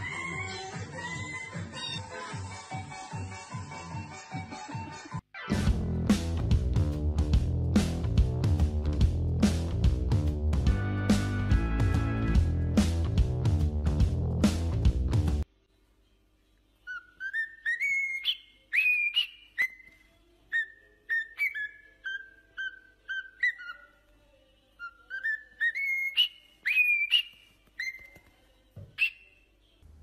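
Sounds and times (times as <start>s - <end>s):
bird whistling a tune: 16.9s - 19.9s, 20.5s - 23.8s, 24.8s - 28.1s.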